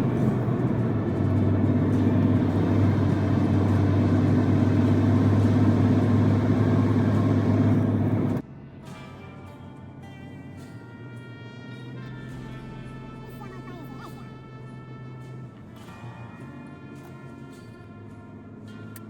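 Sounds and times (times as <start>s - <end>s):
diesel truck engine running: 0.0s - 8.4s.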